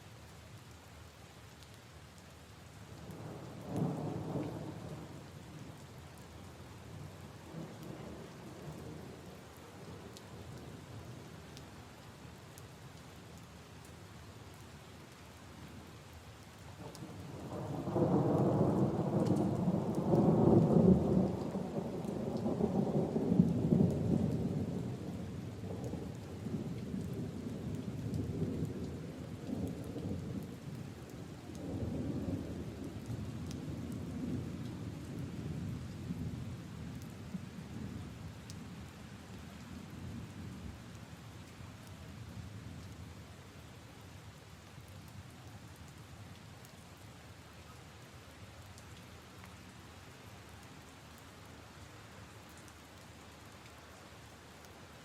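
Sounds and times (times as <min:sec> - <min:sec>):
rain on leaves and puddles: 0:00.0 - 0:55.0
rumble of thunder: 0:16.8 - 0:30.6.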